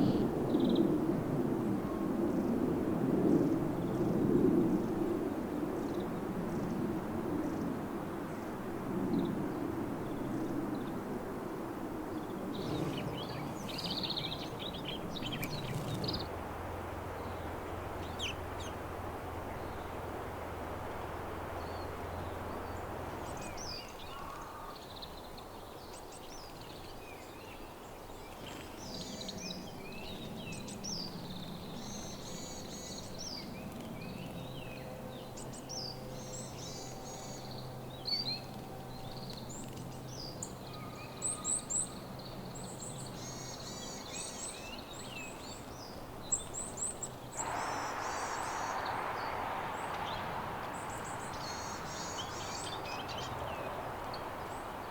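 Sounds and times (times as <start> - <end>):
steady rushing noise: 11.7 - 16.6, 47.4 - 54.9
songbirds chirping: 12.0 - 54.9.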